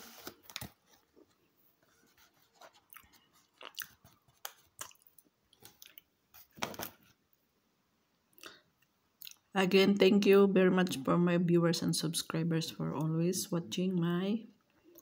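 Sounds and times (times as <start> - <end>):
person chewing a cookie: 2.7 - 6.1, 8.3 - 9.5.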